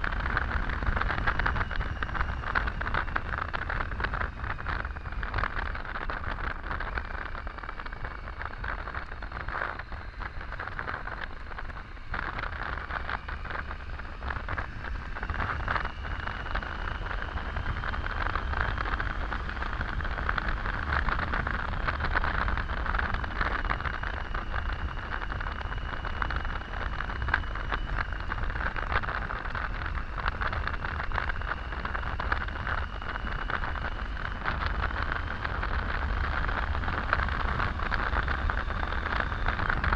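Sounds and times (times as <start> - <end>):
motorcycle engine running: 0.0 - 39.9
wind rush over microphone: 0.0 - 39.9.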